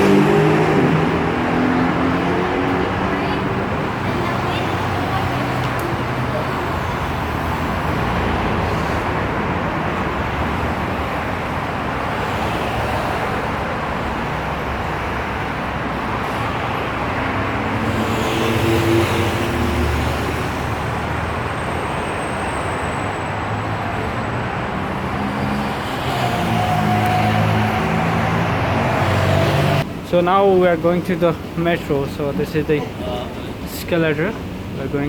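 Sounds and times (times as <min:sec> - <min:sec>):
city road traffic: 0:00.0 - 0:35.0
vehicle passing: 0:14.5 - 0:29.9.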